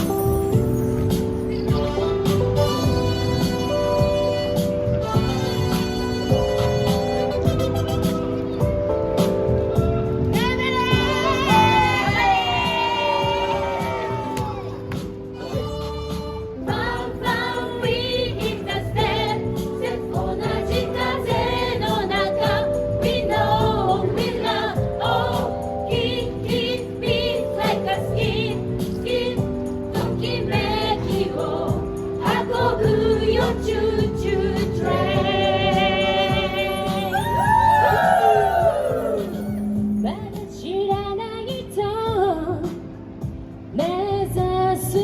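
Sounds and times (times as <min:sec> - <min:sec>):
backing music with steady beat: 0:00.0 - 0:45.0
choir singing: 0:15.4 - 0:37.4.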